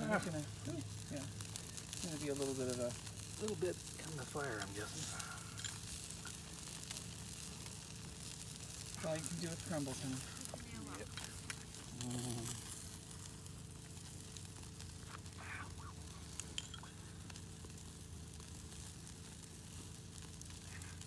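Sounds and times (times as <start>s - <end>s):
burgers sizzling on grill: 0.0s - 21.0s
fire pops and crackles: 0.0s - 21.0s
steady low hum: 0.0s - 21.0s.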